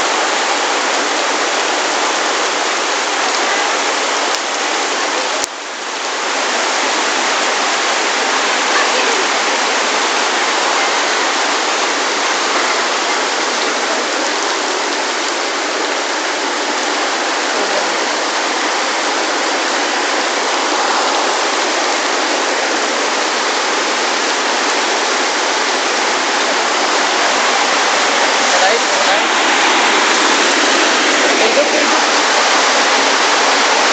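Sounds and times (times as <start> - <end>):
rain falling on a lake: 0.0 - 33.9.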